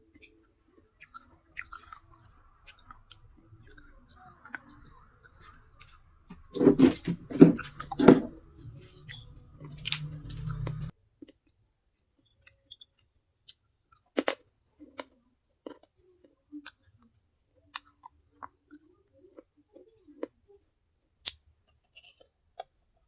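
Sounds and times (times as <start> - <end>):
chewing and crunching: 0.1 - 10.9, 21.2 - 22.8.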